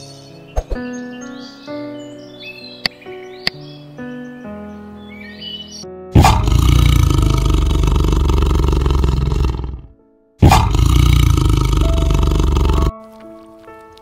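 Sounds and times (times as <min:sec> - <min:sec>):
tiger roaring: 0:06.2 - 0:12.9.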